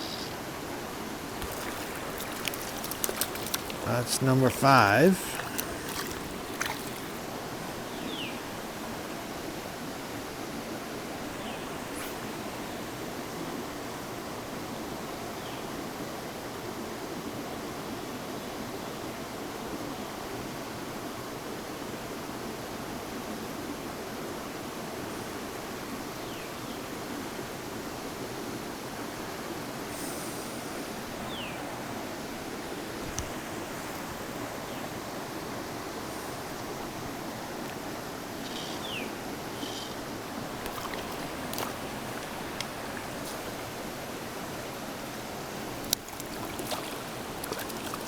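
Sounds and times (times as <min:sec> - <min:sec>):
river water over rocks: 0:00.4 - 0:14.8, 0:30.5 - 0:48.0.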